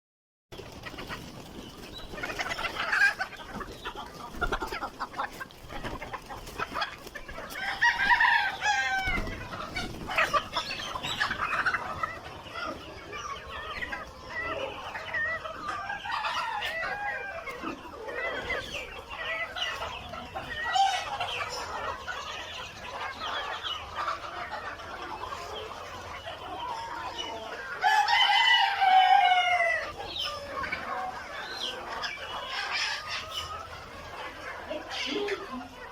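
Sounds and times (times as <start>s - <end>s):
chickens clucking: 0.5s - 35.9s
rooster crowing: 7.5s - 9.4s, 27.8s - 29.9s.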